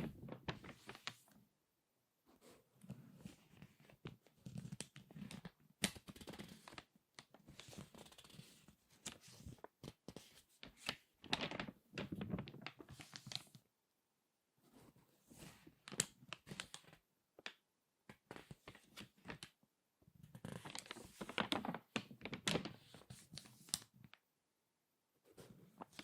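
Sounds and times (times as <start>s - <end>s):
magazine pages crinkling: 0.1s - 1.2s, 9.0s - 13.6s, 20.4s - 23.9s.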